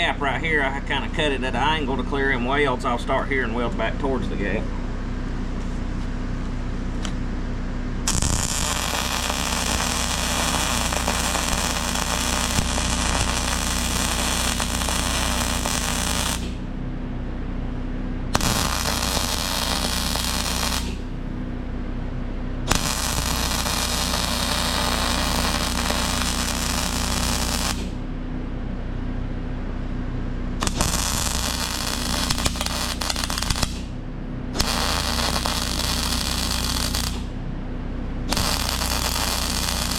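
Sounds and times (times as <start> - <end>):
steady low hum: 0.0 - 39.9
welding arc crackling and hissing: 8.1 - 16.7, 18.3 - 21.1, 22.7 - 28.0, 30.6 - 33.9, 34.6 - 37.3, 38.3 - 39.9.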